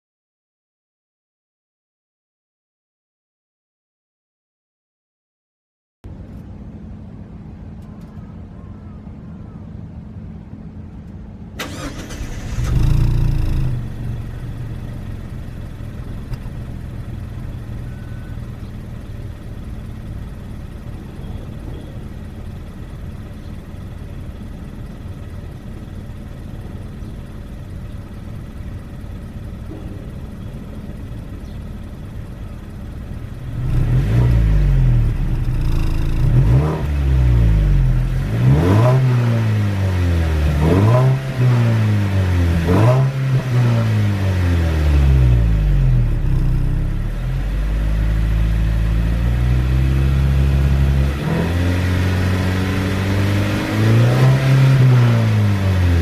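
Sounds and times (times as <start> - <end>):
car engine idling: 6.1 - 56.0
car engine revving: 11.6 - 56.0.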